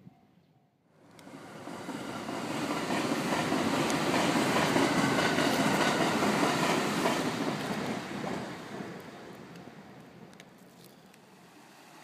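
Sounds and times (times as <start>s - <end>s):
electric train passing at speed: 1.0s - 10.4s, 11.0s - 12.0s.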